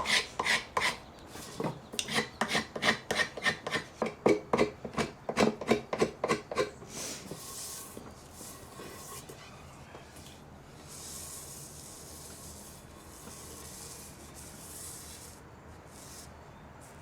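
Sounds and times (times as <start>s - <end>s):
hand rubbing wooden handle: 7.0s - 10.2s, 10.8s - 16.3s.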